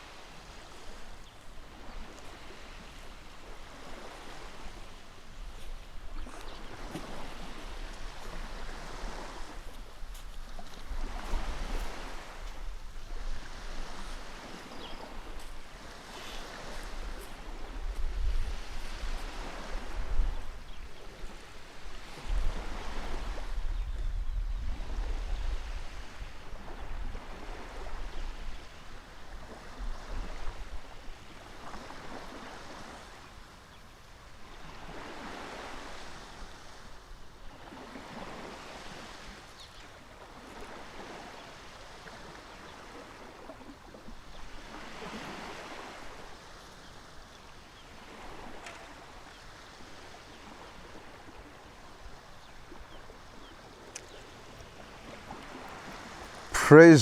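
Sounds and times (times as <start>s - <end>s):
water waves washing in: 0.0s - 20.4s, 54.7s - 57.0s.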